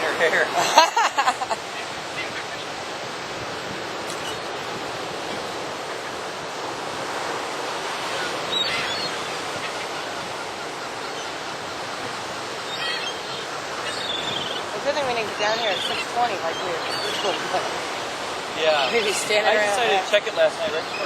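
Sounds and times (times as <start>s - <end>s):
ocean surf washing onto beach: 0.0s - 21.0s
gull crying: 12.6s - 21.0s.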